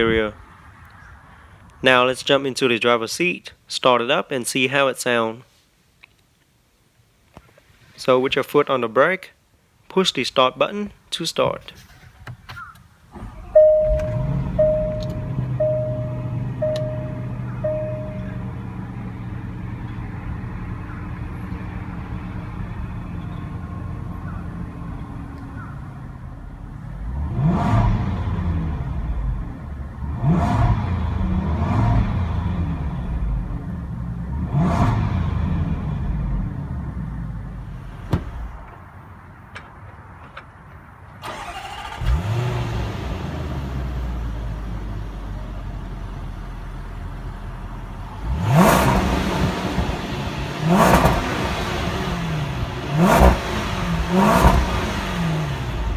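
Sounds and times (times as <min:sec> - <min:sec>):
car engine starting and idling: 0:12.6 - 0:55.9
car engine revving: 0:13.2 - 0:25.5, 0:26.1 - 0:38.6, 0:48.0 - 0:55.9
in-car chime beeping: 0:13.6 - 0:18.8.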